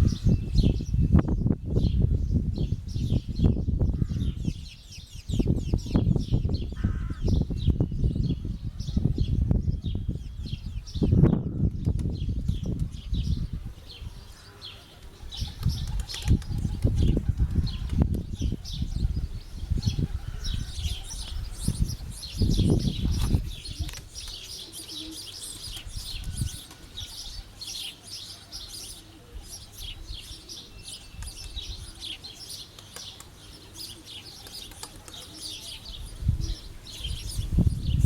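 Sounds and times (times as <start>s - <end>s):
wind rumbling on microphone: 0.0s - 14.4s, 15.0s - 24.4s, 25.6s - 27.5s, 31.0s - 32.0s, 35.8s - 38.0s.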